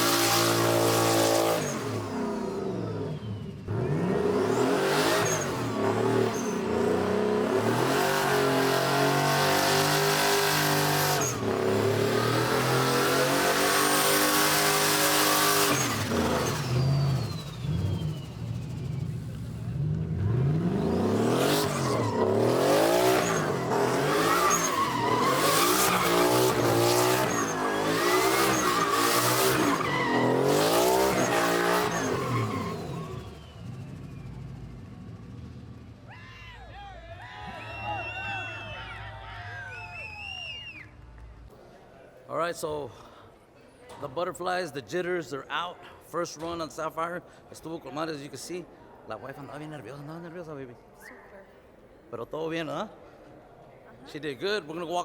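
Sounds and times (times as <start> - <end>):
tires squealing: 0.0 - 35.2, 36.0 - 40.8
truck engine revving: 0.0 - 36.1.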